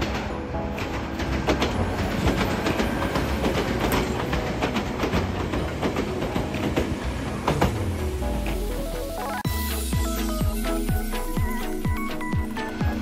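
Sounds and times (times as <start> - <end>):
wheel clacks over rail joints: 0.0 - 9.4
electric train passing: 0.0 - 13.0.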